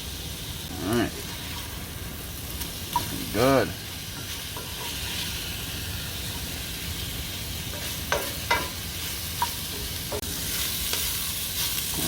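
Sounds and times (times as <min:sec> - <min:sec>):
chicken sizzling in a pan: 0:00.0 - 0:12.0
utensil knocking against pan: 0:07.8 - 0:08.8.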